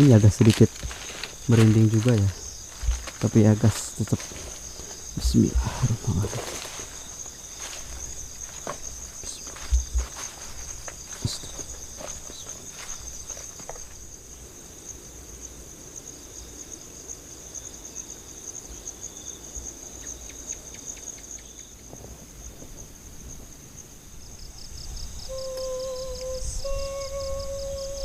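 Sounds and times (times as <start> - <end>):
high-pitched insect trilling: 0.0 - 14.1, 24.5 - 28.0.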